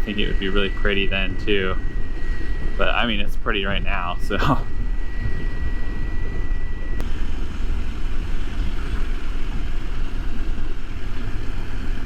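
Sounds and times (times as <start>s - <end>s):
road and wind noise: 4.8s - 12.0s.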